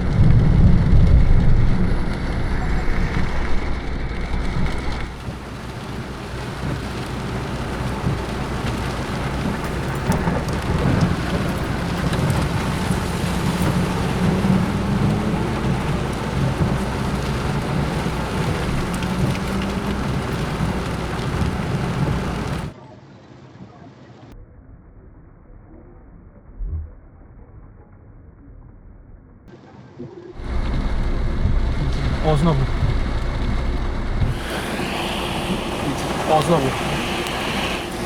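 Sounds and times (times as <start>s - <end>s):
heavy rain falling: 0.0s - 22.7s, 30.4s - 38.0s
low thunder rumble: 0.0s - 22.7s, 30.4s - 38.0s.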